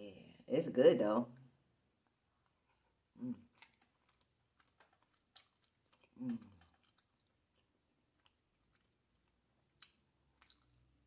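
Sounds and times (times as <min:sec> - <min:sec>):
close-miked chewing: 0:02.4 - 0:11.0
wet mouth clicks and lip smacks: 0:03.4 - 0:10.8.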